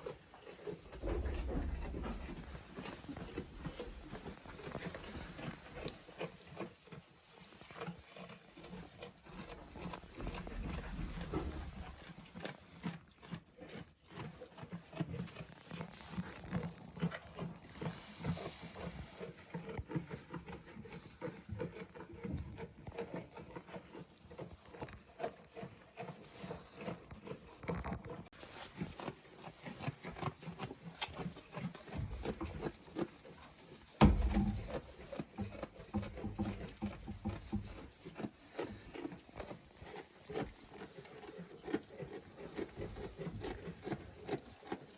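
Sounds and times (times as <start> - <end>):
goats grunting: 0.0 - 6.8
rustling: 0.0 - 12.6, 26.3 - 44.9
small knocks: 34.0 - 37.8.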